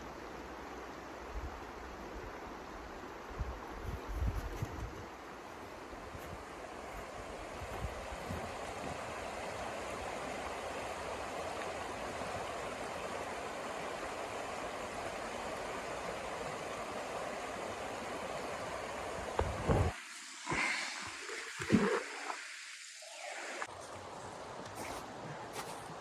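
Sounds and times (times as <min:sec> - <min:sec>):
wind gusts thudding on microphone: 0:03.3 - 0:09.7, 0:19.1 - 0:20.0
rushing snowstorm wind: 0:05.8 - 0:13.4, 0:14.0 - 0:20.7.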